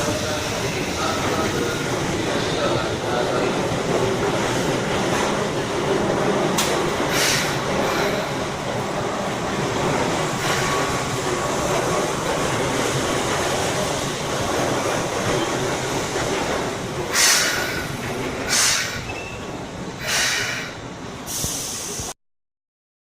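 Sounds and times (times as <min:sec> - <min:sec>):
electric train running rumble: 0:00.0 - 0:22.1
short hisses: 0:07.1 - 0:08.3, 0:17.1 - 0:17.9, 0:18.5 - 0:19.1, 0:20.0 - 0:22.1.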